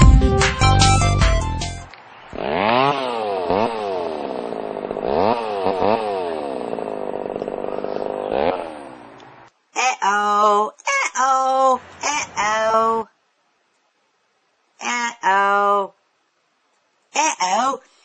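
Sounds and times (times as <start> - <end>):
chainsaw revving: 2.3 - 9.4.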